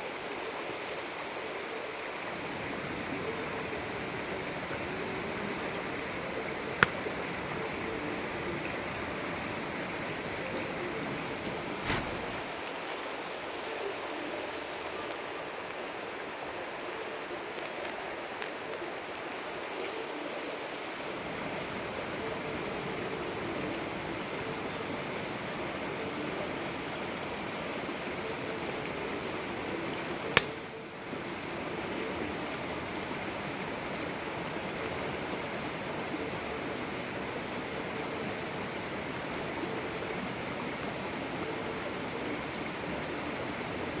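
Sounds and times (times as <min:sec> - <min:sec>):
campfire hissing: 0:00.0 - 0:44.0
sharp fire pop: 0:30.3 - 0:30.6.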